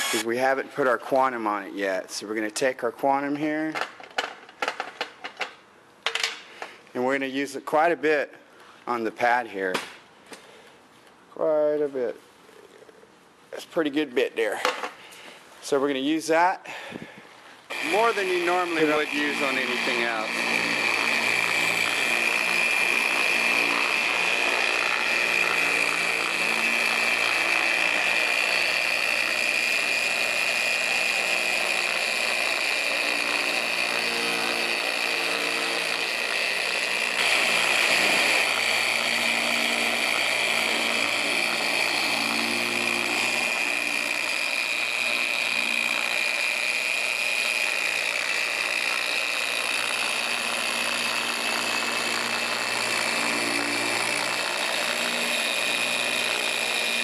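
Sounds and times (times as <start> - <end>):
electric car buffer whining: 0.0 - 0.3, 17.7 - 57.0.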